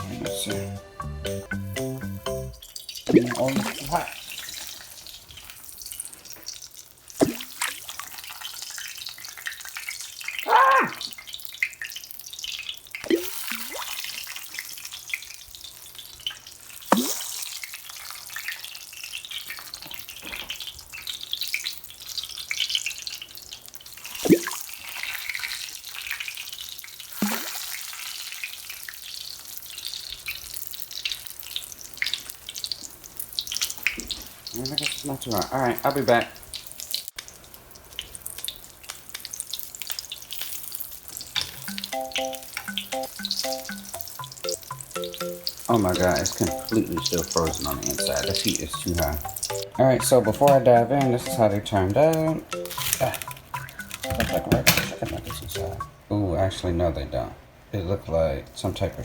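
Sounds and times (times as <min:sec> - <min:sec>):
nuggets sizzling in hot oil: 0:02.6 - 0:49.6.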